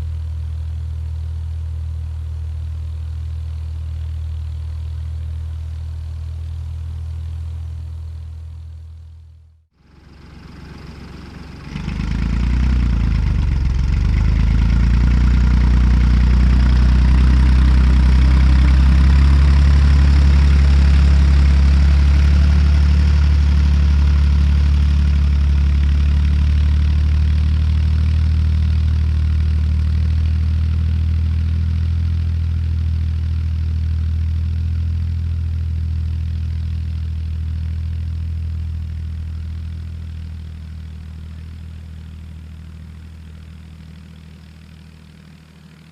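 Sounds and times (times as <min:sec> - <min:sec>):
tractor diesel engine running: 0:09.8 - 0:45.9.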